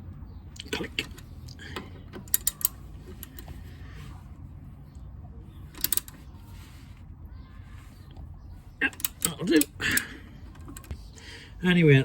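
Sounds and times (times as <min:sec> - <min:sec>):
ratchet wrench clicking: 0:02.2 - 0:03.5, 0:05.8 - 0:06.2.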